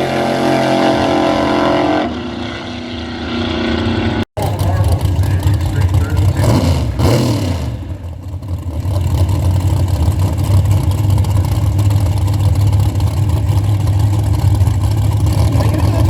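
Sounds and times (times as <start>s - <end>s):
drag car engine idling: 4.4s - 16.0s.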